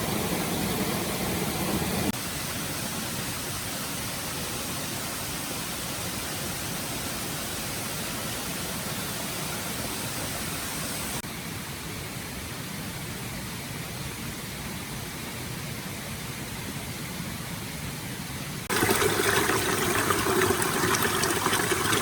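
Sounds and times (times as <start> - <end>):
stream water rushing: 18.7 - 22.0.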